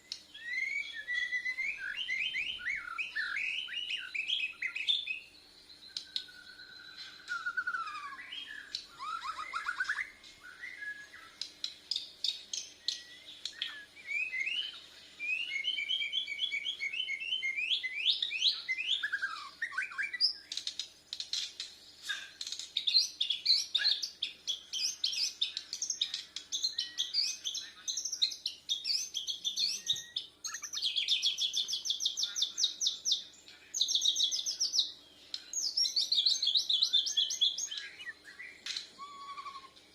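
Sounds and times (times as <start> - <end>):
songbird singing varied song: 0.0 - 21.2, 21.9 - 39.9.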